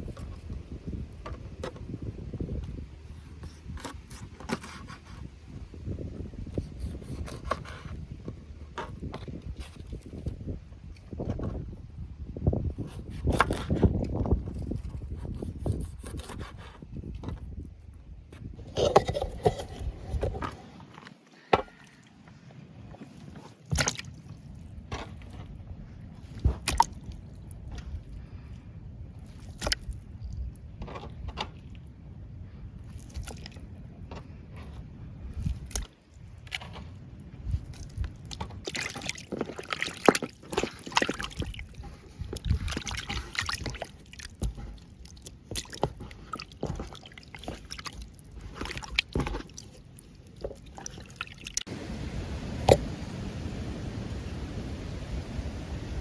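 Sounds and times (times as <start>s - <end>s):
water sloshing and dripping: 21.0s - 28.3s, 35.3s - 54.2s.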